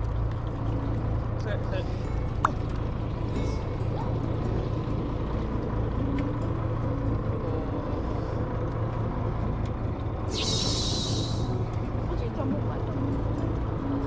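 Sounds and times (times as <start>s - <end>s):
boat engine droning: 0.0s - 14.0s
sudden high hiss: 10.3s - 11.5s.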